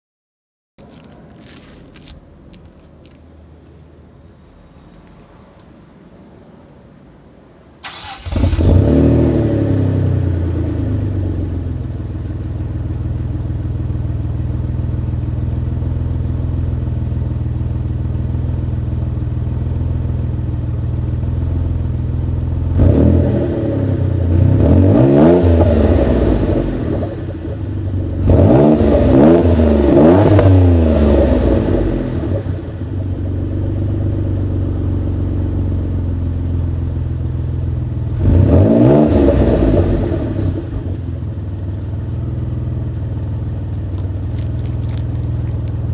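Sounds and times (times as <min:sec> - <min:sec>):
car engine idling and revving: 0:07.8 - 0:45.9.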